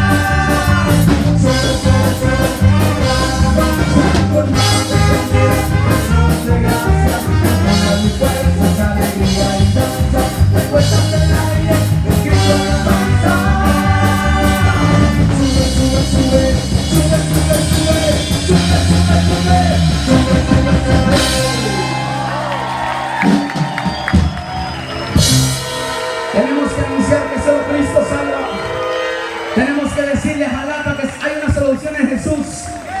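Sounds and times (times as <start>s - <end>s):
person singing: 0.0s - 22.5s
live band playing: 0.0s - 33.0s.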